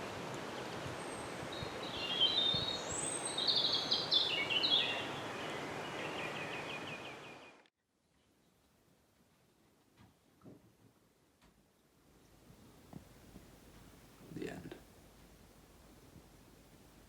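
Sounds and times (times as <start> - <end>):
steady background hiss: 0.0 - 7.6, 8.5 - 17.0
small birds chirping: 0.6 - 8.8
bird trill: 1.1 - 5.2.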